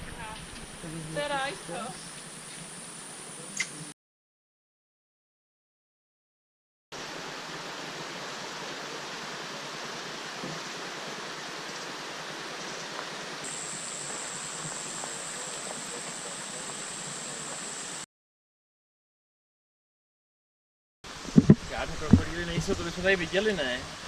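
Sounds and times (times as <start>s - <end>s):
stream water rushing: 7.0s - 18.0s
steady high whine: 13.5s - 18.0s.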